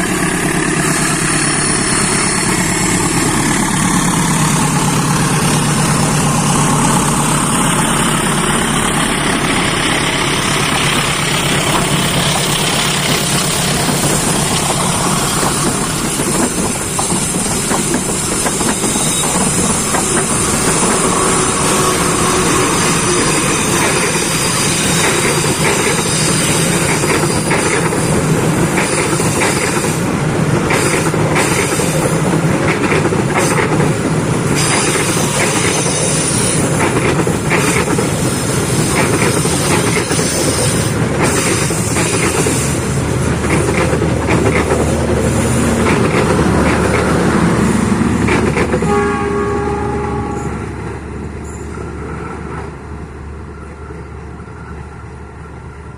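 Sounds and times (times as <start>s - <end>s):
train wheels clattering: 0.0s - 49.0s
train horn: 48.8s - 50.8s.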